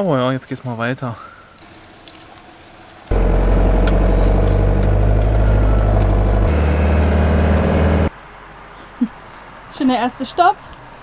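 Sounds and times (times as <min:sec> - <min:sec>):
diesel engine droning: 0:03.1 - 0:08.1.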